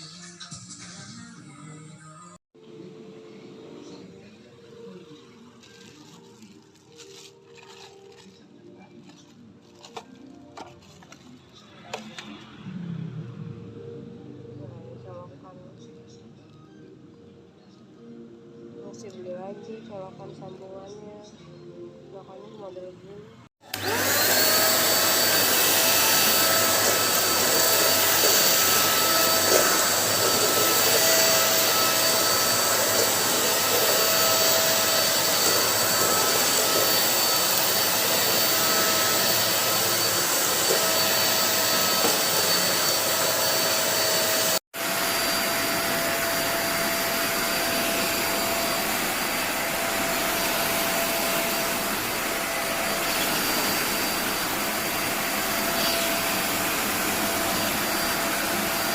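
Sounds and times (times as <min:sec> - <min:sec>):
handheld vacuum cleaner whine: 0:23.6 - 0:58.9.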